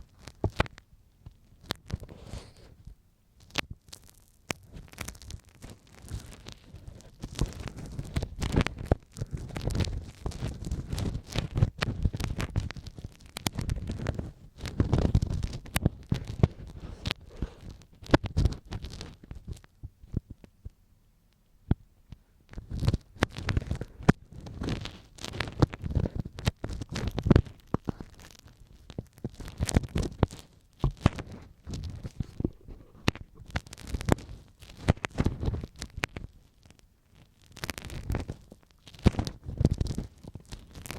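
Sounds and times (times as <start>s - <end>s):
ear pick scraping: 1.6s - 2.9s, 4.5s - 20.3s, 22.1s - 36.3s.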